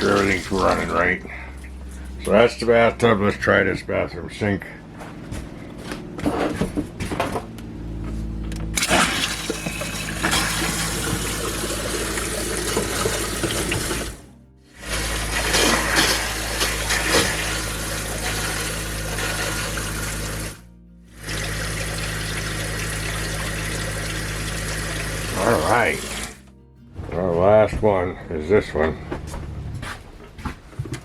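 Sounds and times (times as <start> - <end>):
water running into sink: 0.0 - 1.2, 8.8 - 20.6, 21.2 - 26.4
music: 0.0 - 31.0.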